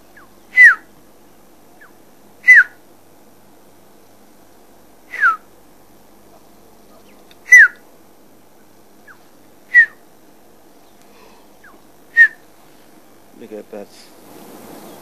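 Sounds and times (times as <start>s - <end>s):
bird whistling descending note: 0.5s - 0.9s, 2.4s - 2.8s, 5.1s - 5.4s, 7.5s - 7.8s, 9.7s - 10.0s, 12.2s - 12.4s
faint answering bird notes: 6.8s - 7.9s.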